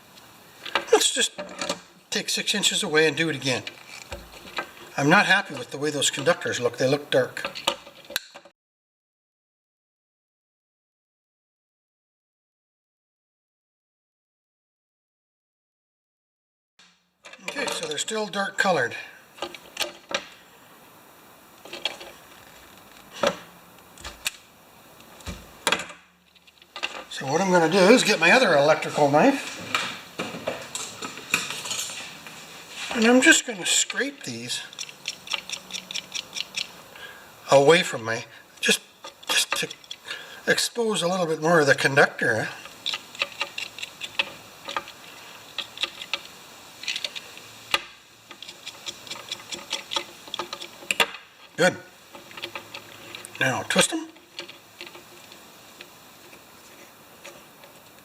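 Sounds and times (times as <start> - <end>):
tools clicking and knocking: 0.7 - 1.8, 7.4 - 8.5, 19.4 - 20.4, 34.7 - 36.8, 39.0 - 40.0, 42.6 - 45.0, 45.6 - 53.4
knife blade scraping wire: 34.7 - 36.8, 48.3 - 51.0.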